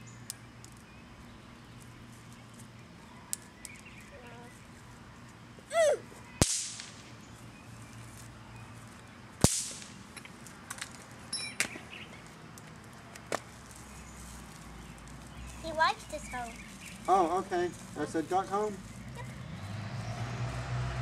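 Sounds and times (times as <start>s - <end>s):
firework cracks: 6.4s - 7.1s, 9.4s - 10.0s.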